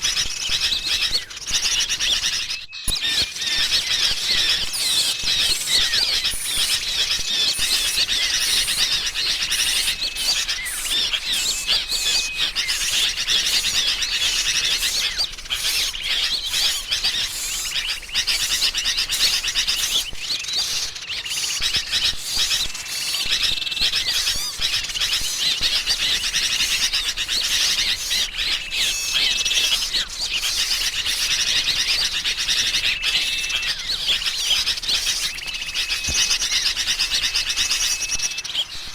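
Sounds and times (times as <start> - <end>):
bulbuls calling: 0.0 - 38.9
songbirds chirping: 0.0 - 38.9.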